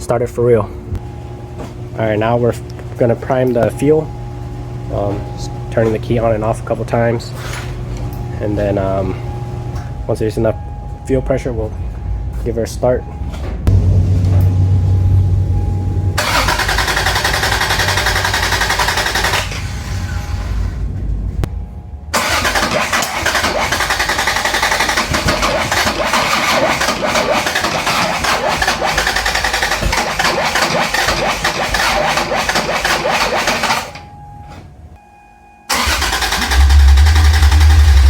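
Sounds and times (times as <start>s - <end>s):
steady low hum: 0.0s - 26.1s, 33.9s - 38.0s
engine cranking on starter: 16.2s - 20.9s, 22.1s - 34.0s, 35.7s - 38.0s.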